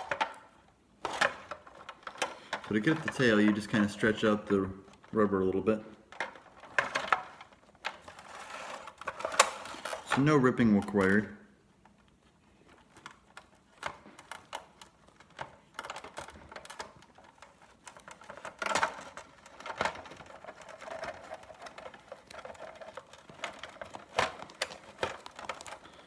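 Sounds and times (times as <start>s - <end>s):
plastic toy clicks and knocks: 0.0s - 5.2s, 12.9s - 26.0s.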